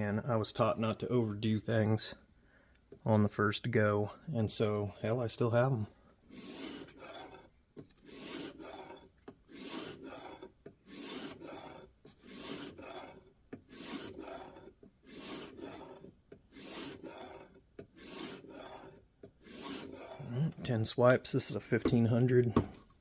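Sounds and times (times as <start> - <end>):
knife scraping on sharpening stone: 6.3 - 20.3.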